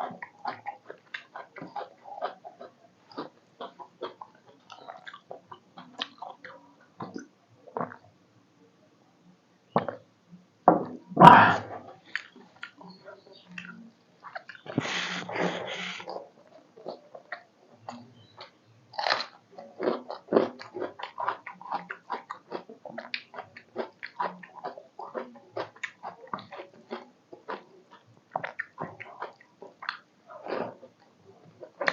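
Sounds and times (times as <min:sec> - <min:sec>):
person chewing food: 0:00.0 - 0:08.0, 0:11.8 - 0:31.9
person biting food: 0:14.7 - 0:16.2.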